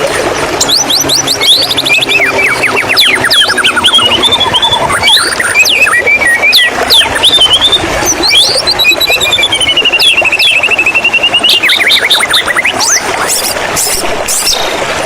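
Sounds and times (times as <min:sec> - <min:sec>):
running water: 0:00.0 - 0:15.0
bird singing whistles and trills: 0:00.6 - 0:13.5.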